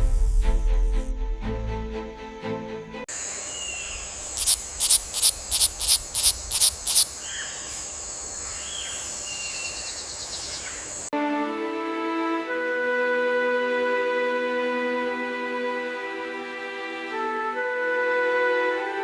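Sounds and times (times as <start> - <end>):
high insect drone: 3.1 - 11.1
sharp high calls: 3.5 - 7.4
short bird chirps: 3.5 - 7.6.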